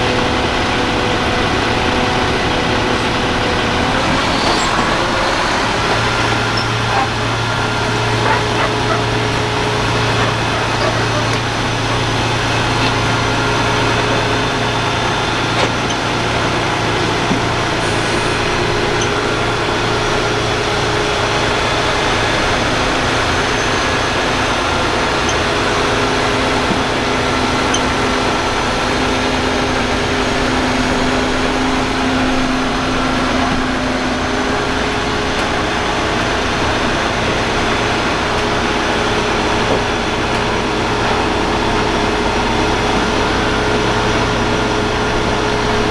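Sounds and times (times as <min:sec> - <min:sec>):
truck diesel engine idling: 0:00.0 - 0:45.9.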